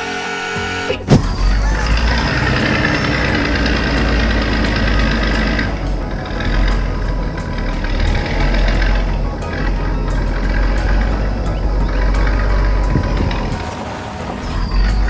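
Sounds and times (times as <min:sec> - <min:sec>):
heavy vehicle engine rumbling: 0:00.0 - 0:15.0.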